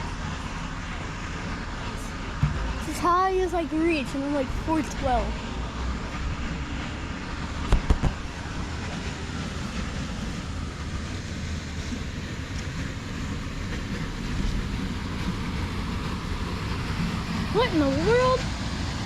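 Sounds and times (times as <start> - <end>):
low rumble: 0.0 - 19.0
wind buffeting microphone: 0.0 - 19.0
sharp knocks: 2.4 - 2.8.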